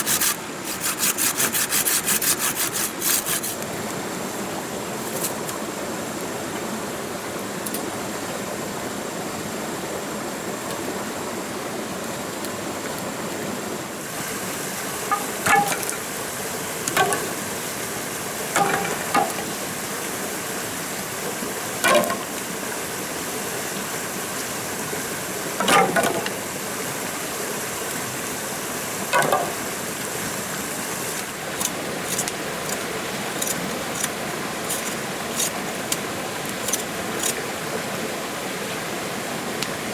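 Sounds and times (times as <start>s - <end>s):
thin high steady tone: 14.9s - 17.9s
sharp knocks: 15.1s - 16.2s, 16.9s - 17.7s, 18.6s - 19.6s, 21.8s - 22.4s, 25.6s - 26.4s, 29.2s - 29.8s.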